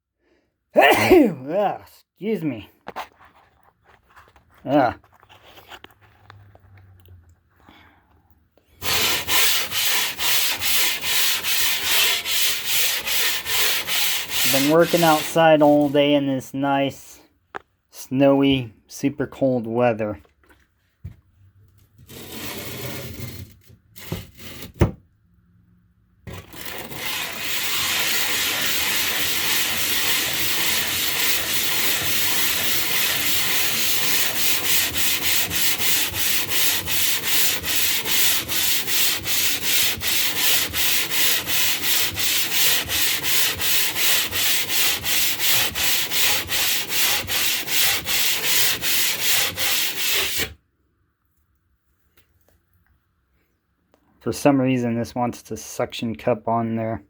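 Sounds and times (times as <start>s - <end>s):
stone scraping gritty: 22.1s - 24.8s, 26.3s - 50.5s.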